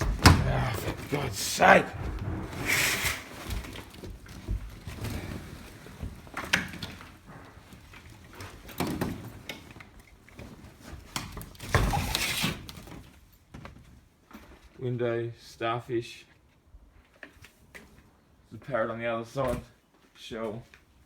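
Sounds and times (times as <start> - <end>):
door clunking and scraping: 0.0 - 9.7.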